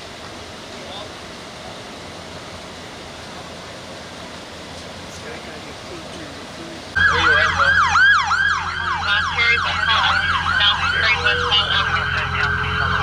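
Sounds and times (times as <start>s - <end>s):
police sirens yelping: 5.0s - 13.0s.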